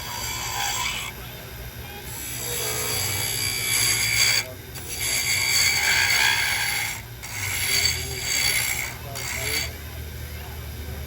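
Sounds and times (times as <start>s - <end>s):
tool scraping turning wood: 0.0s - 1.1s, 2.0s - 9.8s
wood lathe humming: 0.0s - 1.2s, 2.0s - 10.0s.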